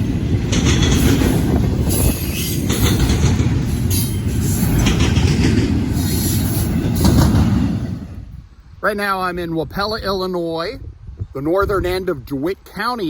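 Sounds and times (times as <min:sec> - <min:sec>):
freight train rumbling: 0:00.0 - 0:10.1.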